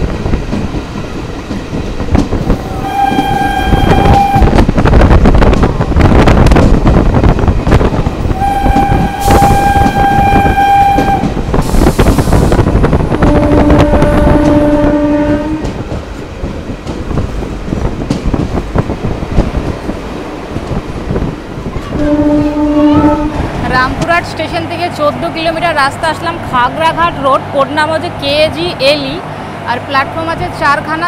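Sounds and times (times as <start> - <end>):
train wheels rumbling and rattling: 0.0 - 31.0
train horn blasts: 2.6 - 4.6, 8.3 - 11.4, 13.1 - 15.8, 21.9 - 23.5.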